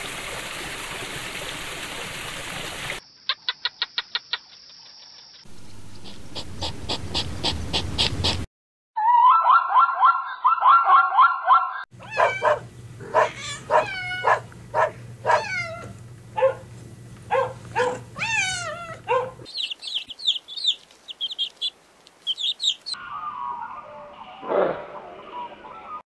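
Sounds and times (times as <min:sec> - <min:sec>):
dog whining and yelping: 0:09.0 - 0:16.6, 0:17.3 - 0:19.4
zebra calls: 0:12.0 - 0:16.6
low steady hum: 0:12.0 - 0:19.5
quail chicks peeping: 0:17.6 - 0:23.0.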